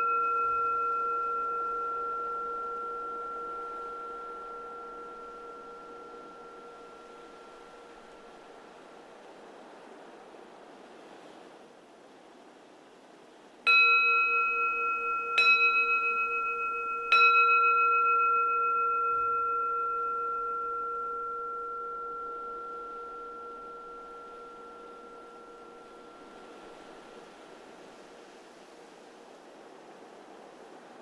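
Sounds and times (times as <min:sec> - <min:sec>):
bowl bell ringing: 0:00.0 - 0:09.0, 0:13.7 - 0:28.0
soft wind: 0:00.0 - 0:31.0.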